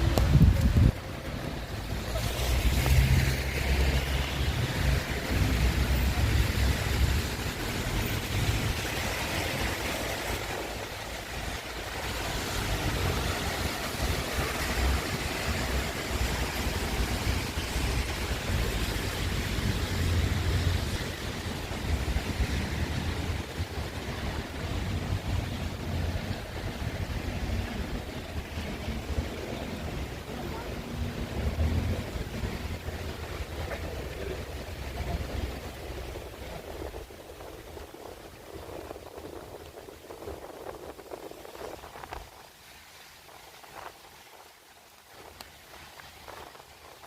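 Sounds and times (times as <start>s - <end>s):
wind buffeting microphone: 0.0s - 3.8s, 4.6s - 47.0s
wind and rain hiss: 0.0s - 47.0s.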